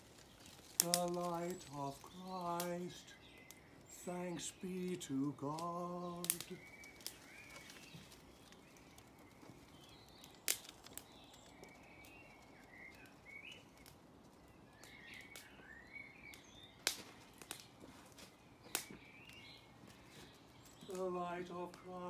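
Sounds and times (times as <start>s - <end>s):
birds chirping and warbling: 0.0s - 22.0s
outdoor background hiss: 0.0s - 22.0s
sharp clicks: 5.4s - 7.2s.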